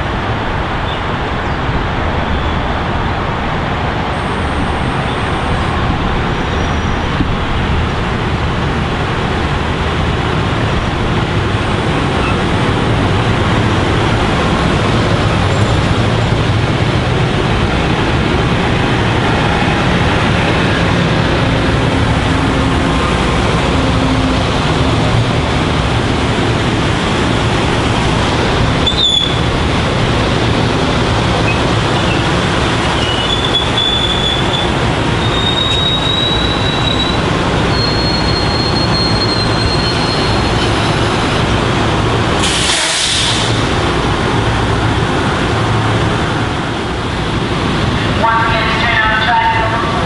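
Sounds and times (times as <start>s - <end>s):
train wheels rumbling on rail: 0.0s - 50.0s
high wheel squeal: 6.4s - 7.1s, 28.8s - 29.6s, 31.4s - 41.4s.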